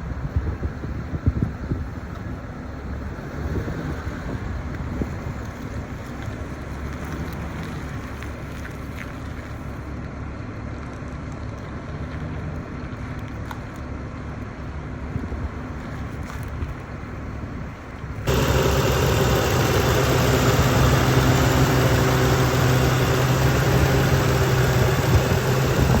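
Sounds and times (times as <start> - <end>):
steady hum: 18.3 - 26.0
truck engine idling: 18.3 - 26.0.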